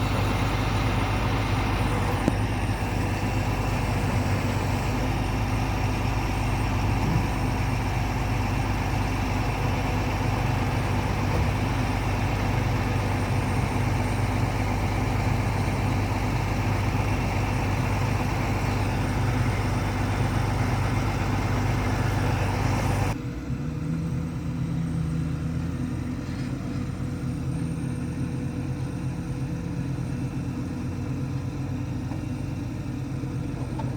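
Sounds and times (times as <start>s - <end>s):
vehicle engine rumbling: 0.0s - 33.9s.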